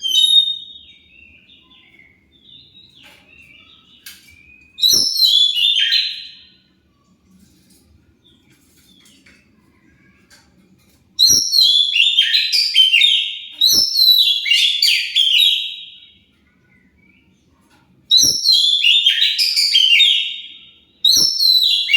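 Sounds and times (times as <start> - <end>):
bird whistling song: 0.0 - 6.6, 11.2 - 17.3, 18.1 - 21.9
faint low hum: 0.0 - 11.5.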